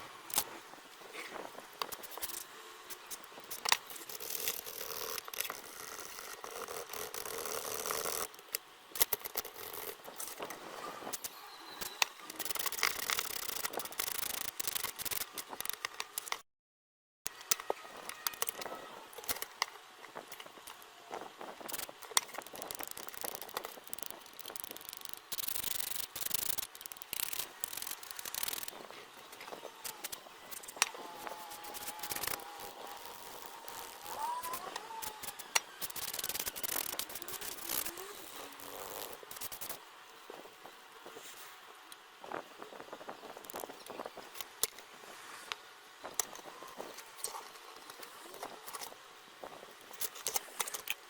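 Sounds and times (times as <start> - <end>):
small clicks and knocks: 17.3 - 38.0
scraping rub: 29.8 - 39.8.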